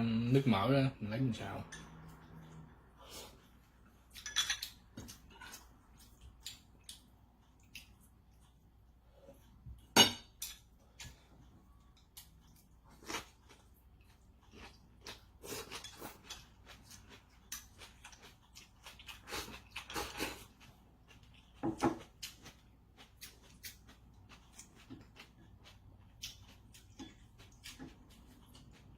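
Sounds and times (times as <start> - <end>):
utensils clinking against dishes: 4.2 - 4.8.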